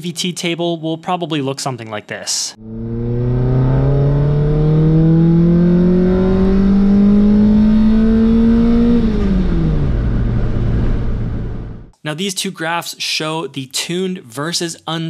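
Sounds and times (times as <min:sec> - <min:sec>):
car engine revving at full throttle: 0:02.6 - 0:11.9.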